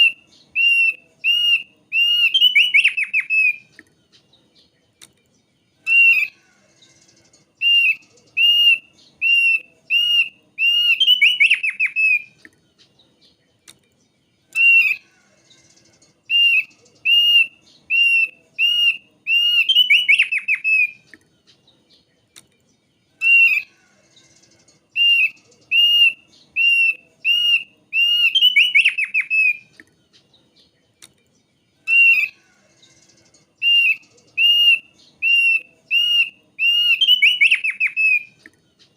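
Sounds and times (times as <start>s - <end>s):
bird whistled song with trill: 0.0s - 38.9s.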